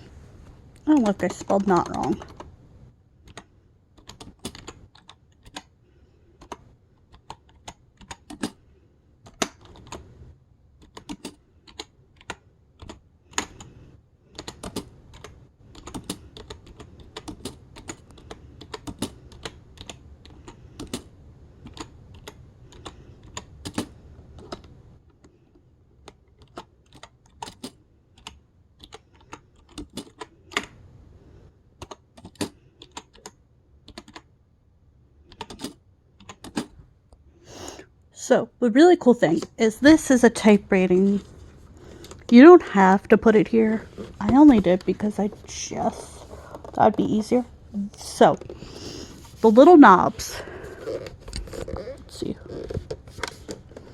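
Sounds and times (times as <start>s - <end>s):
keyboard keystrokes clacking: 0.8s - 2.5s.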